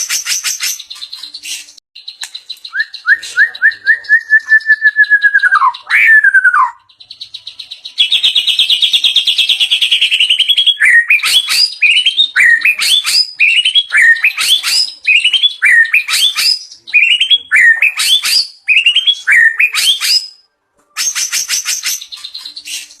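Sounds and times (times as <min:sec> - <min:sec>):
songbird singing varied phrases: 0:00.0 - 0:23.0.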